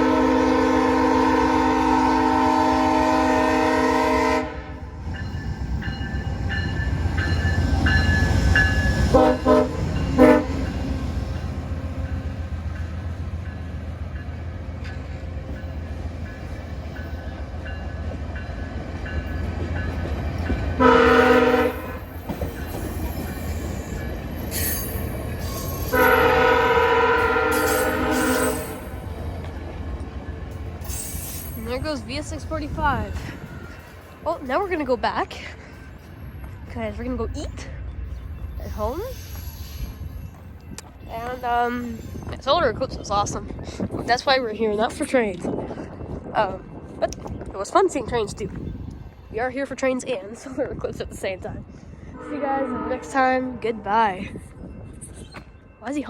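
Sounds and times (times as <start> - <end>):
train air horn blasts: 0.0 - 4.9, 9.1 - 10.8, 20.8 - 22.1, 25.9 - 29.0, 52.1 - 53.6
rumble of passing train: 0.0 - 56.0.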